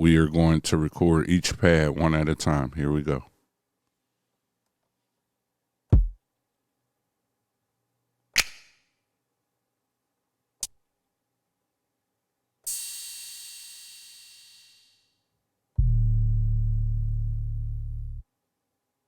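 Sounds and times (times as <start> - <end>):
low kick drum thump: 5.9 - 6.2, 15.8 - 17.0
ringing crash cymbal: 12.7 - 15.2.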